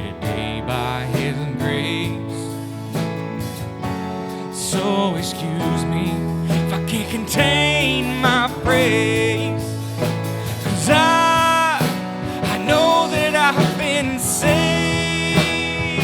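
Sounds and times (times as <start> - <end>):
person singing: 0.0 - 3.1, 4.3 - 16.0
worship band music: 0.0 - 16.0.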